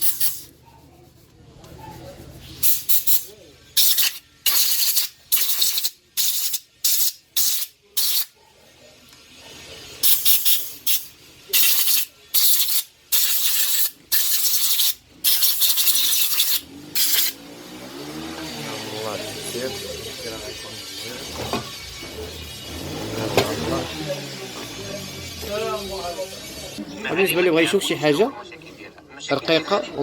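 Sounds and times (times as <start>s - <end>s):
compressed air blasts: 0.0s - 0.5s, 2.6s - 8.3s, 10.0s - 17.4s.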